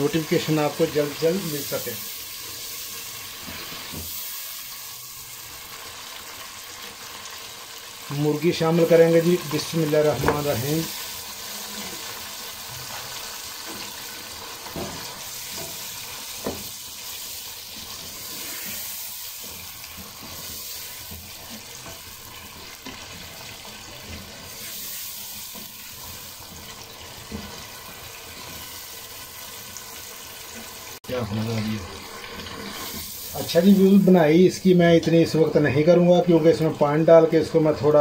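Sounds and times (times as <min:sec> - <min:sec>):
chicken sizzling in hot fat: 0:00.0 - 0:38.0.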